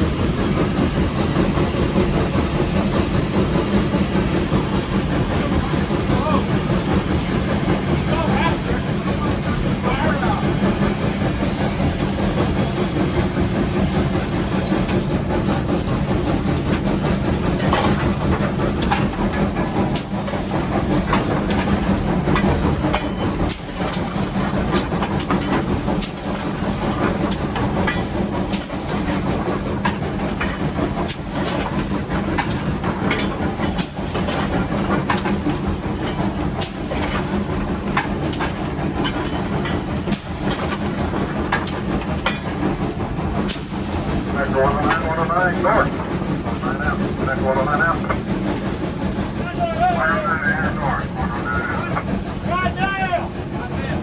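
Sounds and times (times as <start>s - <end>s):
running machinery rumble: 0.0s - 54.0s
steam hiss: 0.0s - 54.0s
sharp clicks and knocks: 14.7s - 44.0s.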